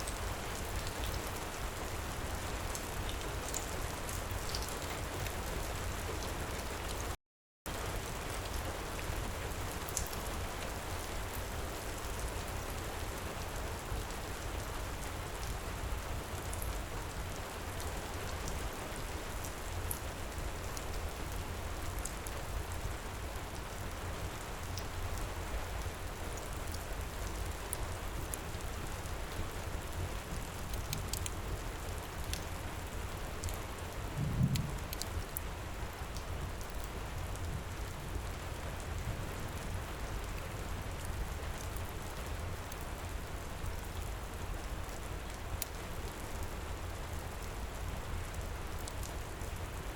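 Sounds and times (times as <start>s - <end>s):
heavy rain falling: 0.0s - 49.9s
wood fire crackling: 24.6s - 38.2s, 38.8s - 49.9s.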